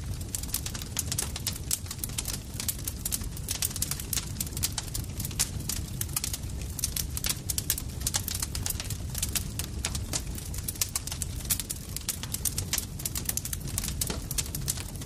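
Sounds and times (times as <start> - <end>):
campfire crackling and popping: 0.0 - 15.0
low rumble of burning fire: 0.0 - 15.0.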